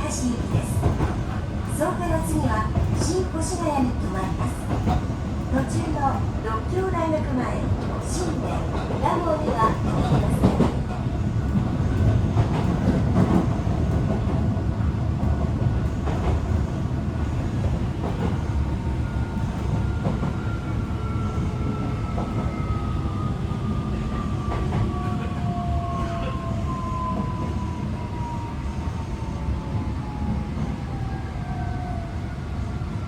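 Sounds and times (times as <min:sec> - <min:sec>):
train running rumble: 0:00.0 - 0:30.7.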